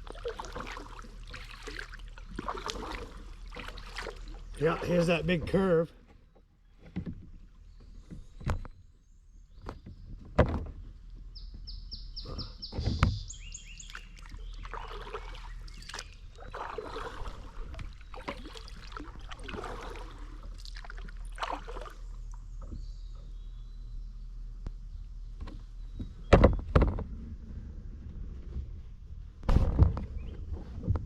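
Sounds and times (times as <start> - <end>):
paddle splashing in water: 0.0 - 8.5, 12.3 - 22.9
paddle knocking against kayak: 0.1 - 8.6, 9.6 - 21.8.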